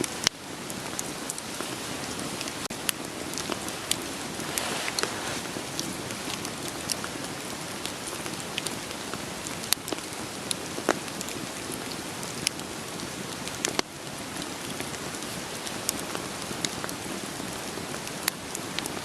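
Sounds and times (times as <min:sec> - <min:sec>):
steady rain falling: 0:00.0 - 0:19.0
wood fire crackling: 0:00.0 - 0:19.0.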